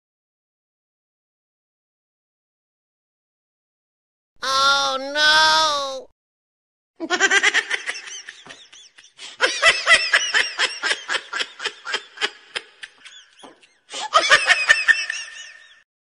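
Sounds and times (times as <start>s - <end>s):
high-pitched laughter: 7.0s - 15.8s.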